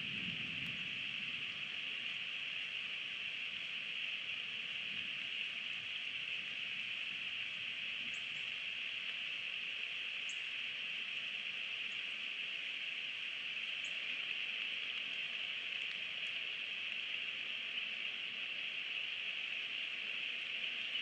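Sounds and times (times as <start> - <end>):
rain falling on trees: 0.0 - 21.0.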